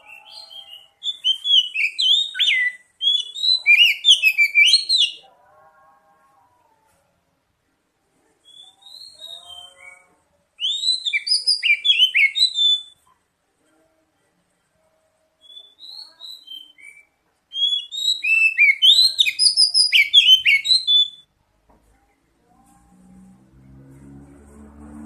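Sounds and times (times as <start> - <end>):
bird singing whistled notes: 0.0 - 5.2, 8.4 - 13.0, 15.4 - 21.3.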